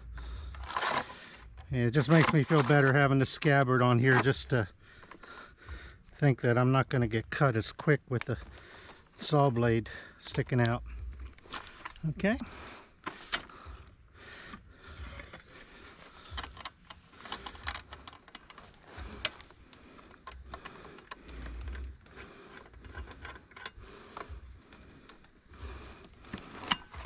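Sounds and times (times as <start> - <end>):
clicks and light rattles: 0.1 - 5.4, 13.0 - 27.0.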